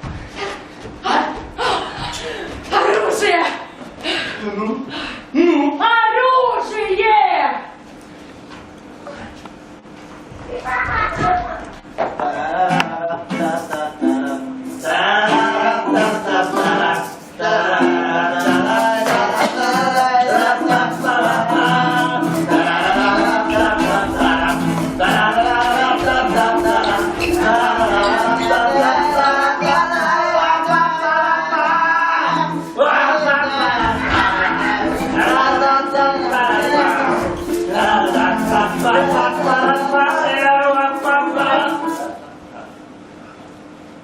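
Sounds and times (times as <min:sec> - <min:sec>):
man singing: 0:12.2 - 0:42.2
instrumental accompaniment: 0:13.3 - 0:31.0, 0:32.2 - 0:42.1.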